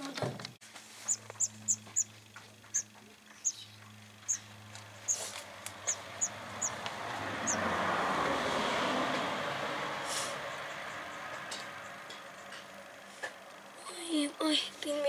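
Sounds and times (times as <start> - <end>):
low steady hum: 0.0 - 8.3
small bird chirping: 1.0 - 7.7
passing vehicle rush: 4.0 - 13.8.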